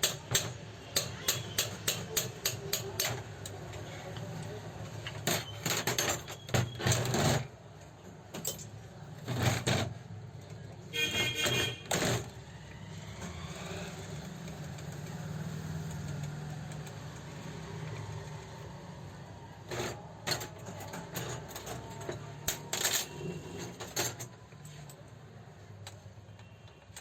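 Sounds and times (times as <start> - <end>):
metallic clicks and knocks of tools: 0.0 - 7.1, 8.3 - 8.8, 14.3 - 17.4, 25.8 - 27.0.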